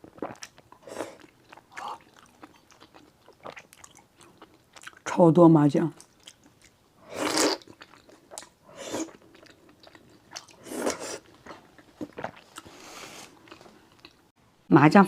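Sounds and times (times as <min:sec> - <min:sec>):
chewing and mouth clicks: 0:00.0 - 0:05.0, 0:06.0 - 0:10.6, 0:11.2 - 0:12.7, 0:13.4 - 0:14.2
person slurping noodles: 0:07.0 - 0:07.7, 0:08.7 - 0:09.2, 0:10.4 - 0:11.3.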